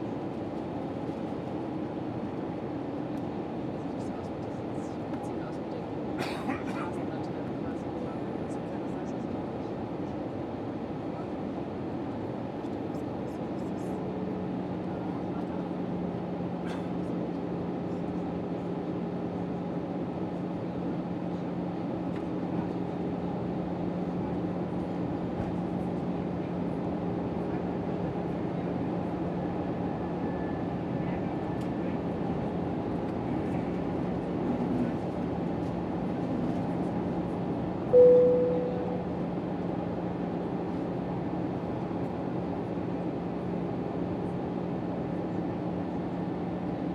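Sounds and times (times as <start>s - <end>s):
airliner cabin engine drone: 12.2s - 46.9s
cabin chime: 38.0s - 39.1s.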